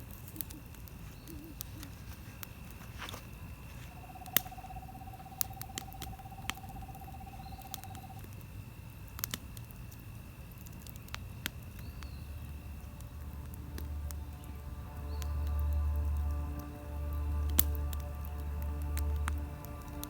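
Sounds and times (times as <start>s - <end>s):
campfire wood crackling: 0.0s - 20.0s
faint high steady tone: 2.9s - 8.3s.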